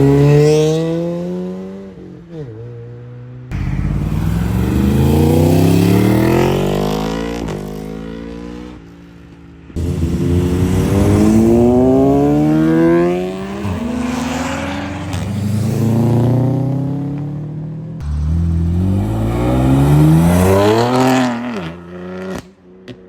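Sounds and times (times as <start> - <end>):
car engines accelerating hard: 3.5 - 8.8, 9.7 - 22.4.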